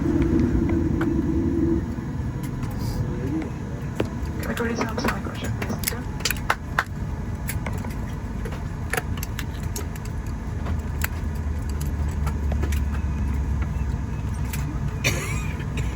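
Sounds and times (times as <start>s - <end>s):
airliner cabin rumble: 0.0s - 15.9s
small clicks and rattles: 4.0s - 14.7s.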